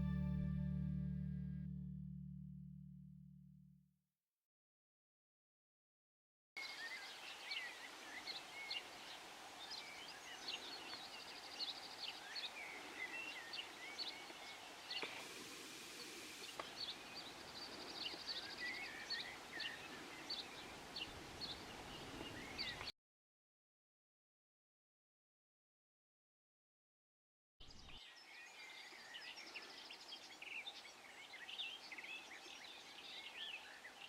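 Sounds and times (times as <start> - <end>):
small birds chirping: 6.6 - 22.9, 27.6 - 34.0.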